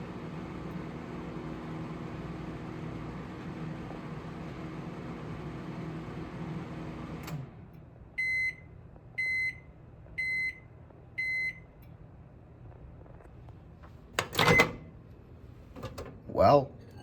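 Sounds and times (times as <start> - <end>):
microwave humming: 0.0 - 12.6, 13.2 - 17.0
microwave high beeps: 8.2 - 11.8, 14.3 - 14.9.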